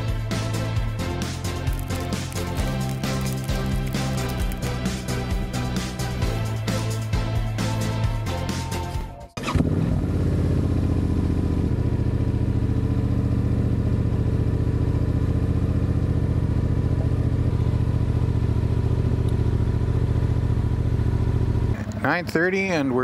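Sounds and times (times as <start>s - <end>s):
motorcycle engine running: 0.0s - 8.8s, 9.5s - 23.0s
music: 0.0s - 9.6s.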